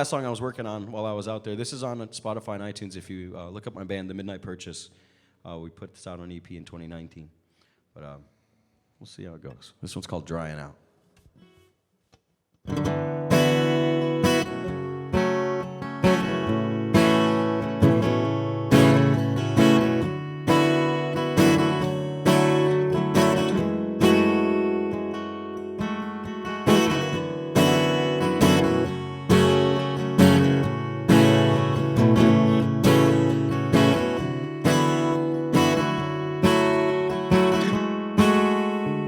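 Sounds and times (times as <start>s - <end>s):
acoustic guitar strumming: 12.7s - 39.0s.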